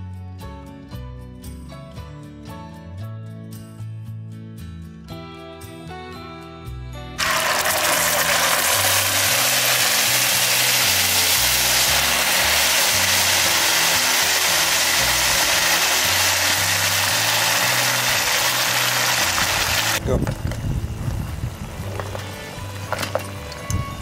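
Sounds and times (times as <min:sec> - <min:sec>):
background music bass line: 0:00.0 - 0:24.0
paste sizzling in hot oil: 0:07.2 - 0:20.0.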